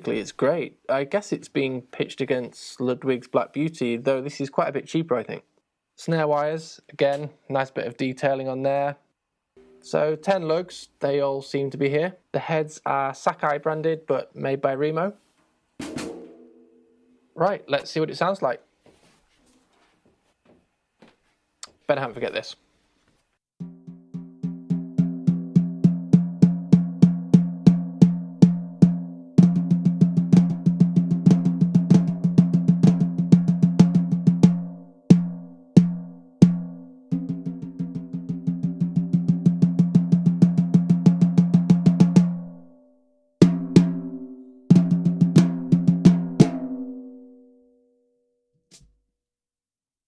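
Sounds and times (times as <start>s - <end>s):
snare drum played with sticks: 15.8s - 16.5s, 23.6s - 42.4s, 43.4s - 47.1s.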